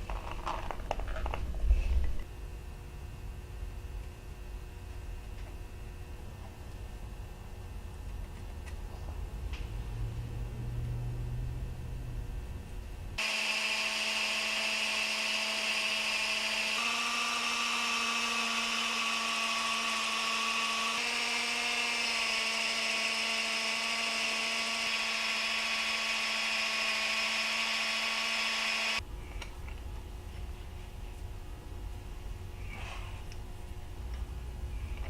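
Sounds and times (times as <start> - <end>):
high-speed electric power tool: 13.2 - 29.0.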